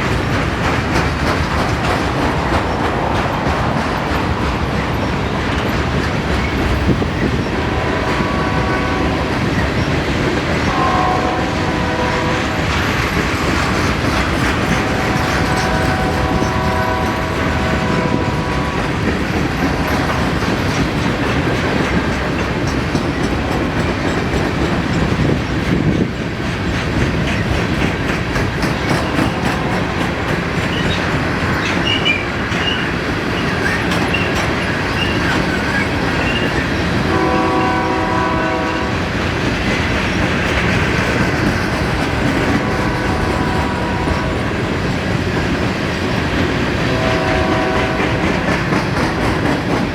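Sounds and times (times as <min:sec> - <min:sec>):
freight train wheels clacking: 0:00.0 - 0:49.9
locomotive air horn chord: 0:07.5 - 0:09.4, 0:10.7 - 0:12.6, 0:14.8 - 0:19.0, 0:37.1 - 0:39.1, 0:42.6 - 0:44.7, 0:46.9 - 0:48.4.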